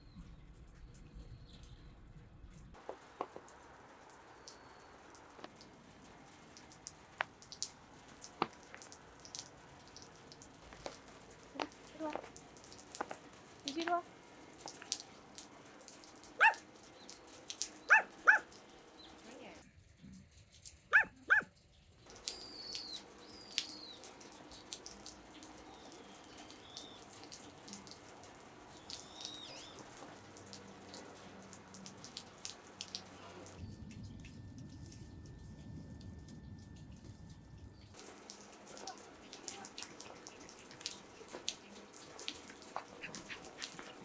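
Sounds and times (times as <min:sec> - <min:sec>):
dog barking: 0:16.3 - 0:16.7, 0:17.7 - 0:18.6, 0:20.9 - 0:21.5, 0:38.6 - 0:44.0.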